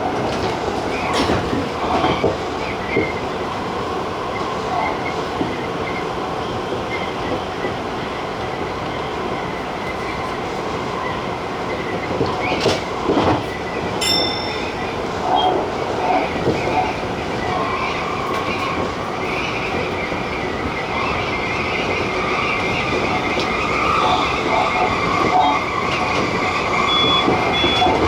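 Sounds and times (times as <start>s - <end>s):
train wheels rumbling on rail: 0.0s - 28.0s
ringing tone: 14.0s - 15.0s.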